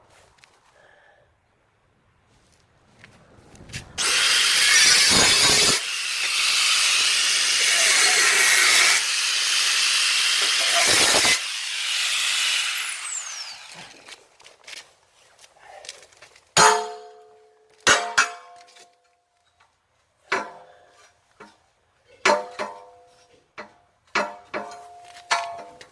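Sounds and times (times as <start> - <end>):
power tool motor whining: 4.0 - 14.2.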